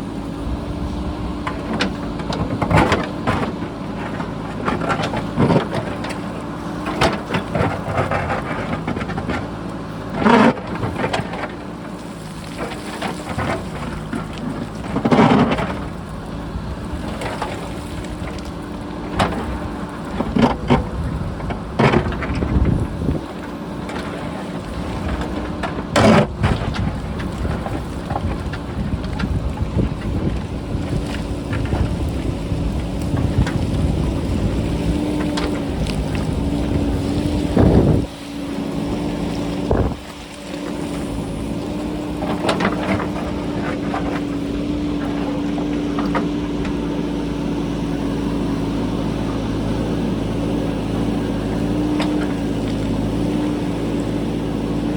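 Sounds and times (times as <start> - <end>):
diesel engine running: 0.0 - 54.9
wind buffeting microphone: 15.6 - 23.8, 24.6 - 45.0.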